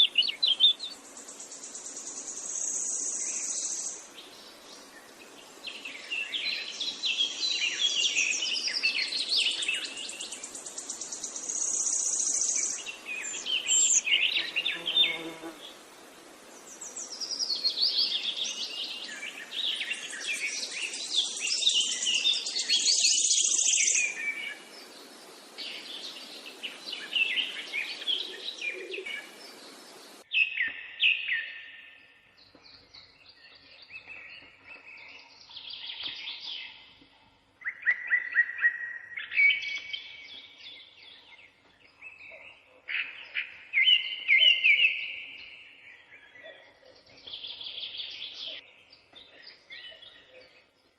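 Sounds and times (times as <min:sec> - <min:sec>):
birds chirping and singing: 0:00.0 - 0:15.6, 0:16.6 - 0:50.9
steady hiss: 0:00.0 - 0:30.2.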